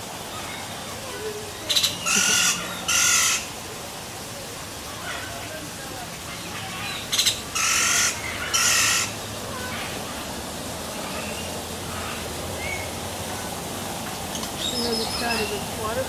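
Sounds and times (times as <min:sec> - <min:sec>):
bird squawking harshly: 0:01.8 - 0:03.5, 0:06.8 - 0:09.2.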